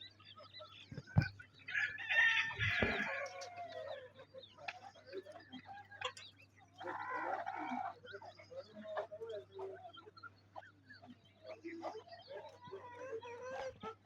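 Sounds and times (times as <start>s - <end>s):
hens clucking: 0.0s - 14.0s
short thump: 0.9s - 1.3s, 2.6s - 3.1s.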